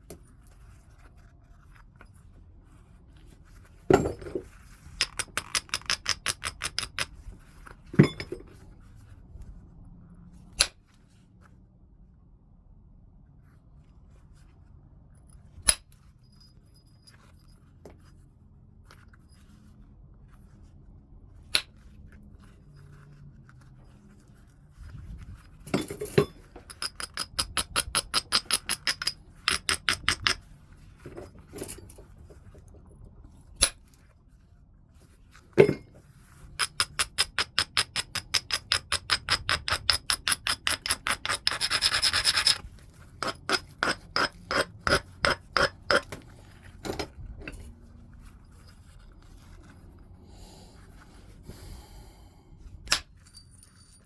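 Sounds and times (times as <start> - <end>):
rhythmic scraping on stone: 36.7 - 46.4.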